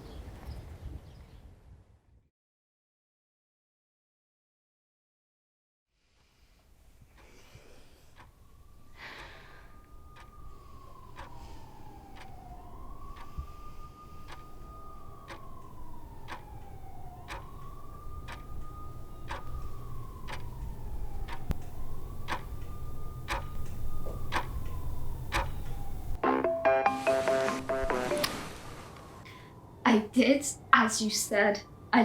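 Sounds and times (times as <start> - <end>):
distant siren wailing: 6.6 - 32.0
clock ticking: 7.2 - 7.5, 8.1 - 26.2
music: 26.2 - 28.4.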